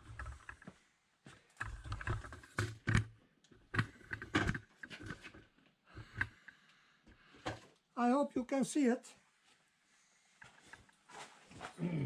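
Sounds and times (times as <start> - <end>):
camera handling knocks and rumbles: 1.6 - 3.1, 3.7 - 5.5.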